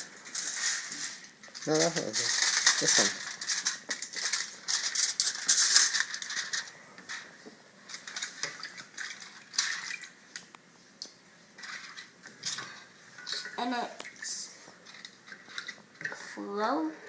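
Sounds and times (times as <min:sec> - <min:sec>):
tin foil crinkling: 0:00.0 - 0:10.1, 0:11.6 - 0:13.6, 0:14.8 - 0:16.1.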